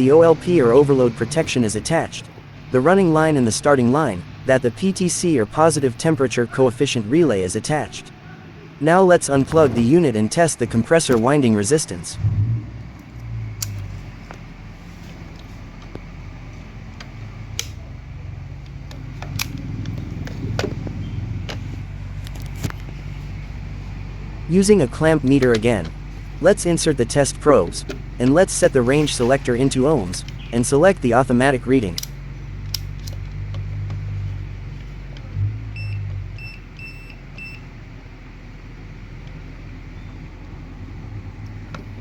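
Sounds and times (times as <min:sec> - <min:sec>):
steady low hum: 0:00.0 - 0:42.0
hand tools clicking and tapping: 0:15.3 - 0:17.8, 0:18.6 - 0:22.9, 0:31.9 - 0:34.1
clamp meter beeps: 0:35.8 - 0:37.7.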